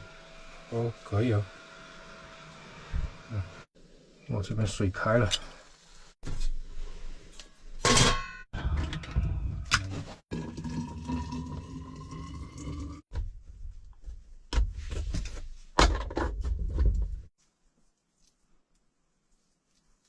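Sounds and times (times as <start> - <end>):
objects knocking and clattering: 15.8 - 17.3.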